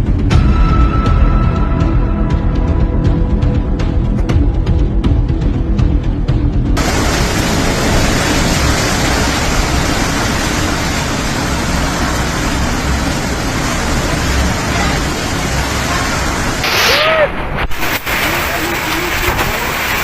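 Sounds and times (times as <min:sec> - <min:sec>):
typhoon wind and rain: 0:00.0 - 0:20.0.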